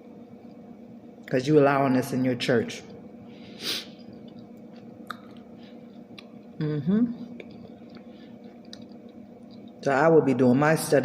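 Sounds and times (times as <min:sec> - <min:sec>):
person chewing food: 0:03.8 - 0:06.6, 0:07.2 - 0:09.8.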